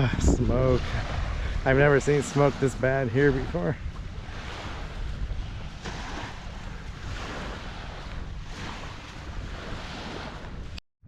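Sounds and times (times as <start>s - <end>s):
small waves washing onto beach: 0.0s - 10.8s
wind rumbling on microphone: 0.0s - 10.8s.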